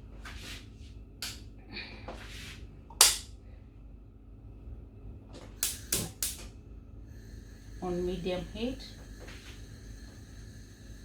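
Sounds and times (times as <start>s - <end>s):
cooker switch clicks: 2.9s - 3.3s, 5.6s - 6.5s.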